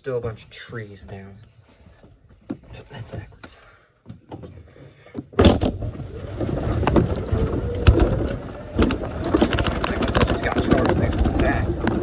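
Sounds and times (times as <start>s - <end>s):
rattles and knocks: 5.4s - 12.0s
golf cart driving rumble: 5.5s - 12.0s.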